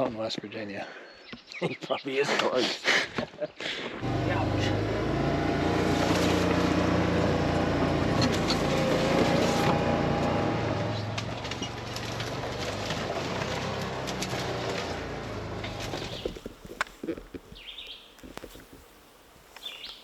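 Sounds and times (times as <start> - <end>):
vehicle engine running: 4.0 - 16.5
road noise: 4.0 - 18.5.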